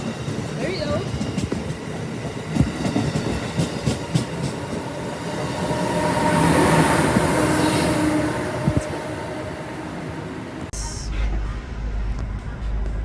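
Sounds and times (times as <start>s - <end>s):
train wheels clicking over rail joints: 0.0s - 5.4s
train rushing past with hum: 0.0s - 13.0s.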